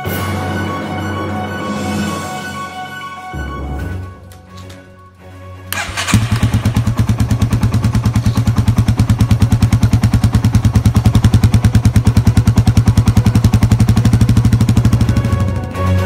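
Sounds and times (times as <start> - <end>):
motorcycle engine idling: 5.8 - 15.8.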